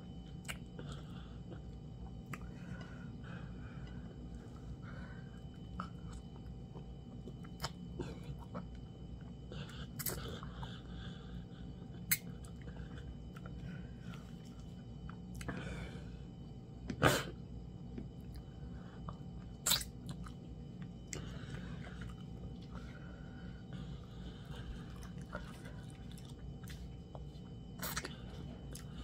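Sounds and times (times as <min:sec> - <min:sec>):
steady low hum: 0:00.0 - 0:29.0
chewing and wet smacking: 0:00.2 - 0:03.0, 0:05.3 - 0:11.0, 0:11.8 - 0:15.6, 0:17.8 - 0:29.0.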